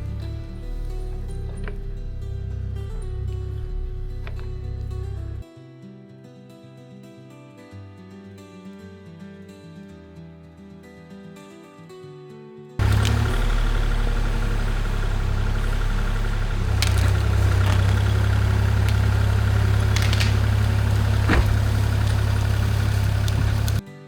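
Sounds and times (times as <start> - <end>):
excavator diesel engine running: 0.0 - 5.4, 12.8 - 23.8
sharp knocks: 16.6 - 23.8.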